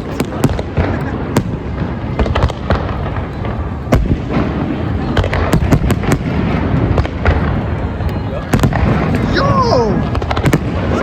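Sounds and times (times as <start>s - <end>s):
loud firework bang: 0.0s - 7.7s, 10.0s - 11.0s
fireworks booming: 0.0s - 11.0s
fireworks cracking and crackling: 0.0s - 11.0s.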